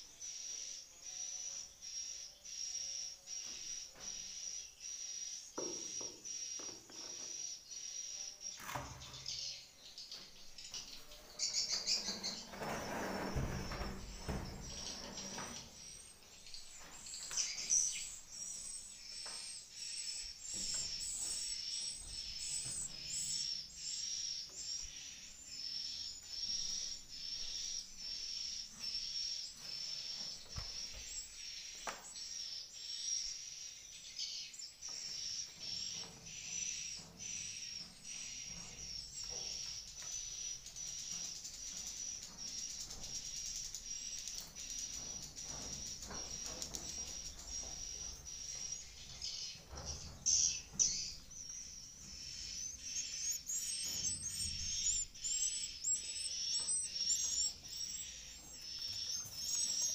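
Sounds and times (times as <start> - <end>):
rustling or scraping noise: 10.8 - 18.1.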